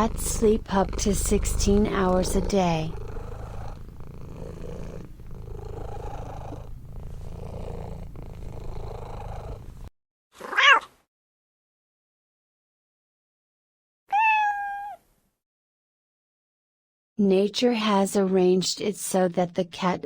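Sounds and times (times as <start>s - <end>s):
cat purring: 0.0s - 9.9s
cat meowing: 10.4s - 11.0s, 14.1s - 15.0s.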